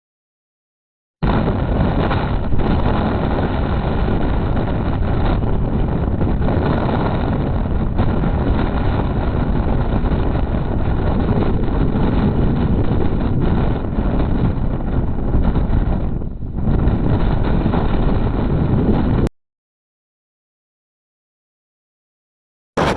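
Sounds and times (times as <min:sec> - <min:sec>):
wind buffeting microphone: 0:01.2 - 0:19.3.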